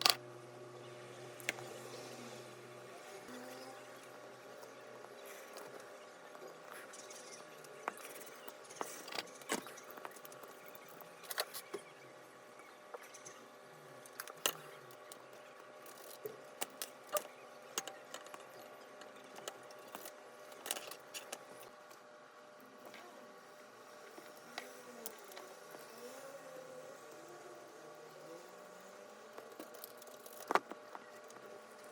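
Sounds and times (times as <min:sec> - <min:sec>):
faint steady hum: 0:00.0 - 0:31.9
small tools clicking and tapping: 0:14.1 - 0:22.0, 0:29.4 - 0:31.5.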